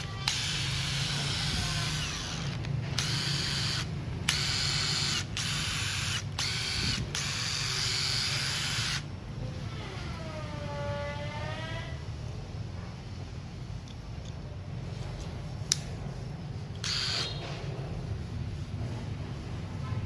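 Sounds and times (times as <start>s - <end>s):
impact wrench bursts: 0.0s - 9.1s, 16.7s - 17.5s.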